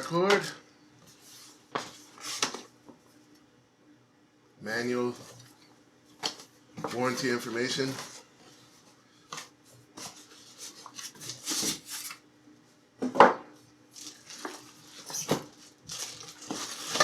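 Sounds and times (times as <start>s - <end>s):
rustles and scrapes of packing: 7.8s - 12.2s, 13.9s - 17.0s.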